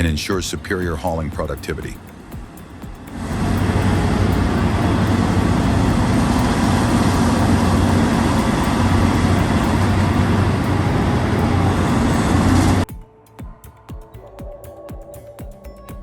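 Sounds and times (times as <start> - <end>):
heavy diesel engines humming: 0.0 - 12.9
loud mechanical noise: 2.0 - 12.8.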